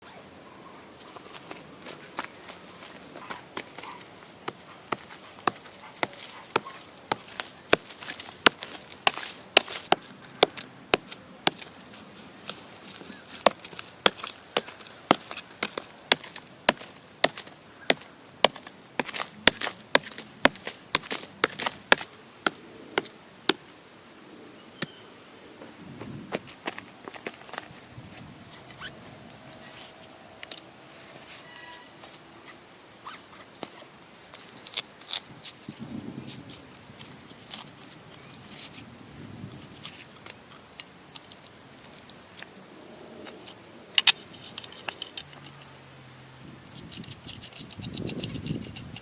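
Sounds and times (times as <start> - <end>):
wood being chopped: 3.3 - 11.7, 13.3 - 23.6.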